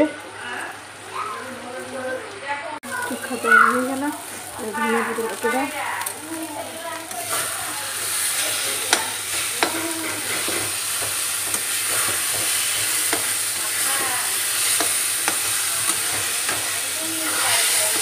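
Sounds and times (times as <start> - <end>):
vegetable mash sizzling in oil: 0.0 - 18.0
metal spatula scraping a pan: 7.1 - 18.0
spatula clicking against pan: 8.0 - 18.0.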